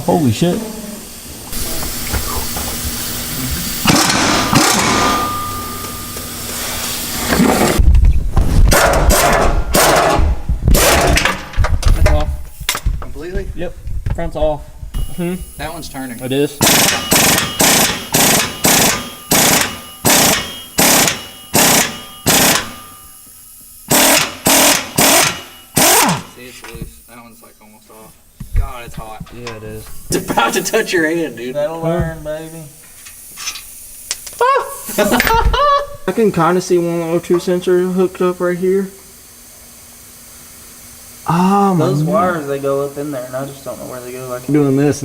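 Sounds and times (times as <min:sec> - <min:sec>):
impact wrench bursts: 0:01.5 - 0:07.8, 0:08.7 - 0:12.9, 0:15.0 - 0:27.5, 0:32.4 - 0:35.8
cordless power wrench motor: 0:16.6 - 0:22.8, 0:23.9 - 0:26.4.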